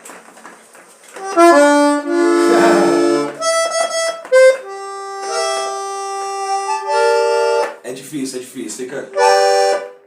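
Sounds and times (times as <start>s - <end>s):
out of tune accordion: 1.2s - 7.9s, 9.0s - 10.0s.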